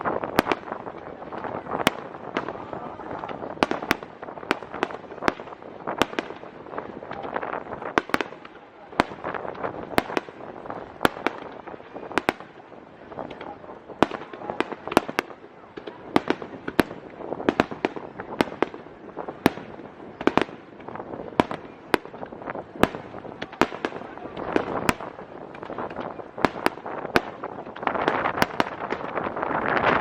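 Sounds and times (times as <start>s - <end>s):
fireworks bursting and cracking: 0.0s - 30.0s.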